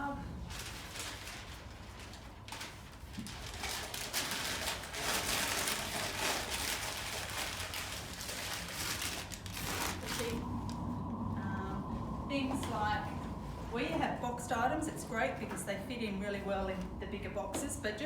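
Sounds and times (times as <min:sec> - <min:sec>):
packing paper crinkling: 0:00.4 - 0:10.8.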